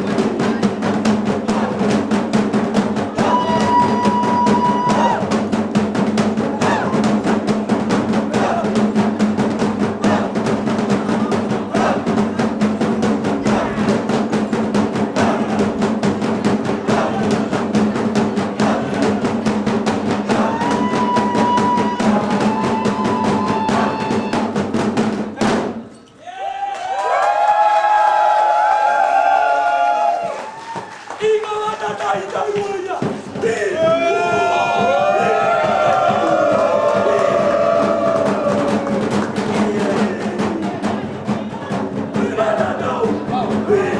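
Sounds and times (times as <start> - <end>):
fast dense drumming: 0.0 - 25.9, 31.6 - 43.9.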